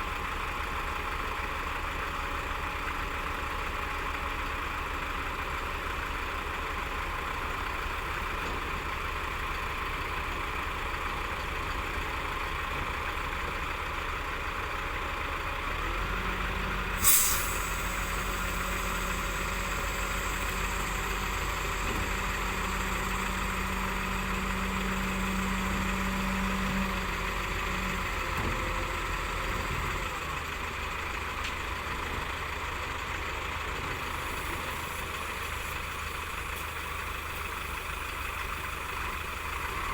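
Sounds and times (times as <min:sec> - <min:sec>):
heavy machinery diesel engines: 0:00.0 - 0:39.9
deeper heavy engine note: 0:16.6 - 0:30.6
air hiss burst: 0:17.0 - 0:22.4.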